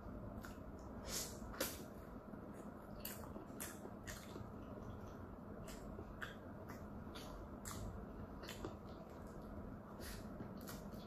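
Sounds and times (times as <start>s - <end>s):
wet chewing and lip-smacking: 2.5s - 11.0s.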